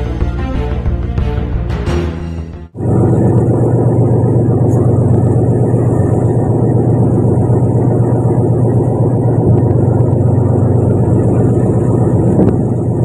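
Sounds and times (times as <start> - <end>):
boat engine drone: 2.8 - 13.0.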